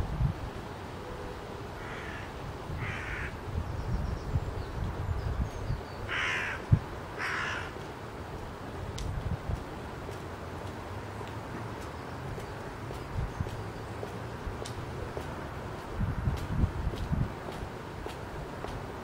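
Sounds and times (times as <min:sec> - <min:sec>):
wind rumble on microphone: 0:00.0 - 0:19.0
bird cawing: 0:01.8 - 0:03.4, 0:06.1 - 0:07.8.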